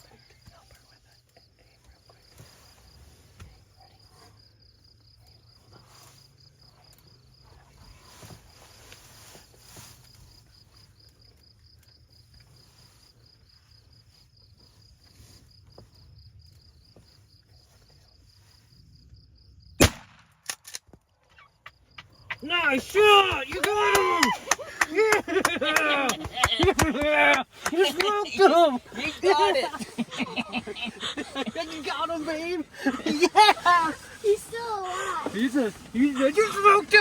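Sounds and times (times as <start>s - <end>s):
loud shotgun shot: 19.8s - 20.6s
insect trilling: 21.3s - 23.0s.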